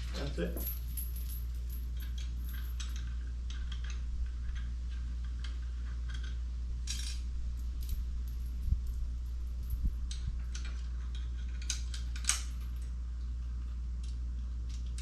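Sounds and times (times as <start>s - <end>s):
metal tools clinking: 0.0s - 3.1s
steady low hum: 0.0s - 15.0s.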